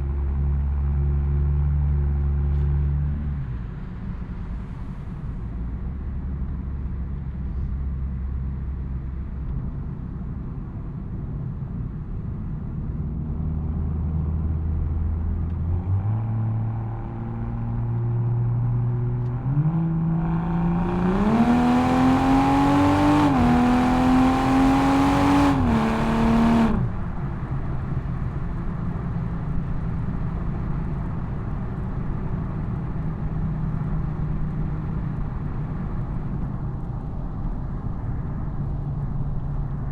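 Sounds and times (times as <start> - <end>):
car exhaust accelerating: 13.6 - 31.6.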